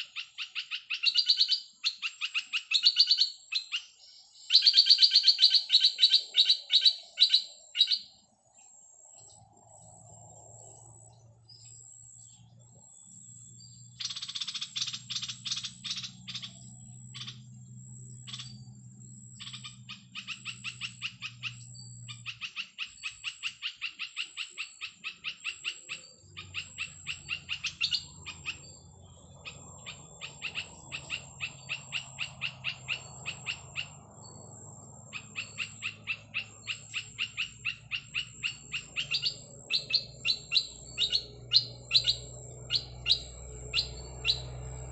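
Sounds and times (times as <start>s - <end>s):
bird chirping rapidly: 0.0s - 44.9s
steady low hum: 26.2s - 44.9s.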